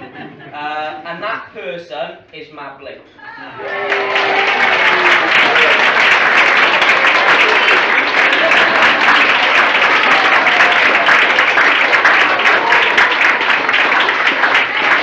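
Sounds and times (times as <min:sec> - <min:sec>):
audience clapping: 0:03.6 - 0:15.0.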